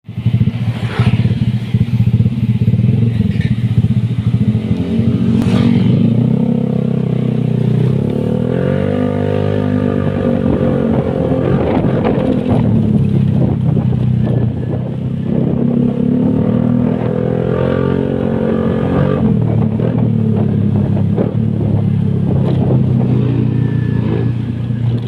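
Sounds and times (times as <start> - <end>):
scooter engine idling and revving: 0.1 - 25.0.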